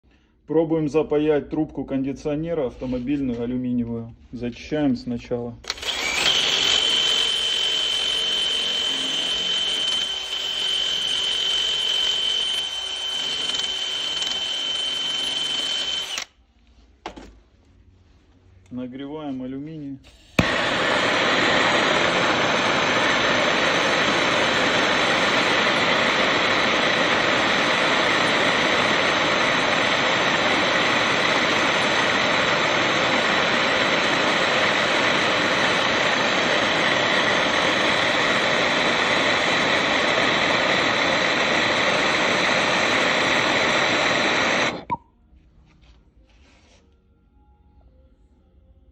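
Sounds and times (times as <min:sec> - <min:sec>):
gas torch flame hissing: 0:20.1 - 0:44.9.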